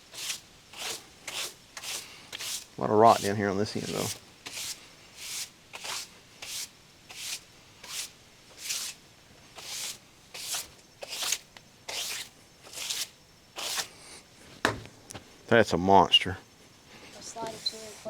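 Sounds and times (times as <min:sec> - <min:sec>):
brush sweeping wood: 0:00.0 - 0:13.9.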